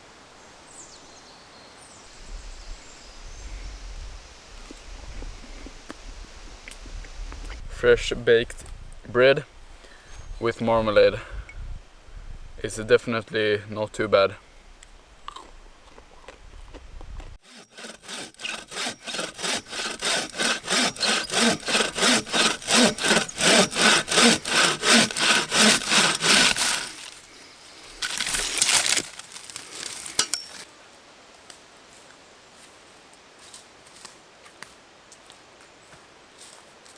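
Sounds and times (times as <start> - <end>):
hand saw cutting wood: 17.4 - 30.7.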